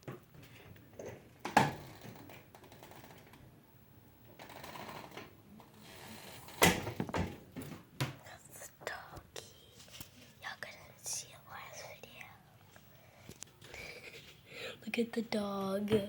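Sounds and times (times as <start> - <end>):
faint shuffling: 8.2 - 16.0.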